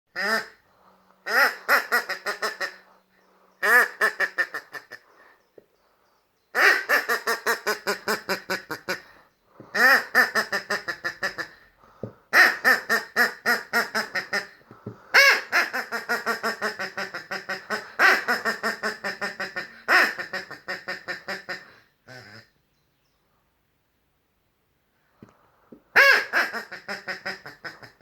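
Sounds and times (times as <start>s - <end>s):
toy duck quacking laughter: 15.2s - 22.5s.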